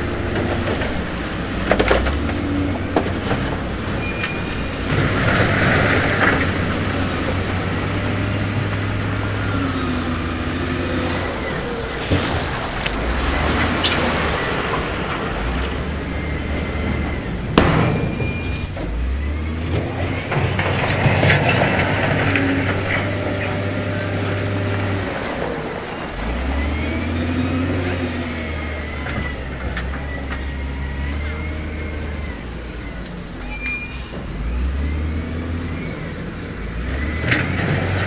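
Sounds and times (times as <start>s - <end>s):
diesel machinery revving: 0.0s - 38.0s
metallic clank: 17.0s - 23.7s.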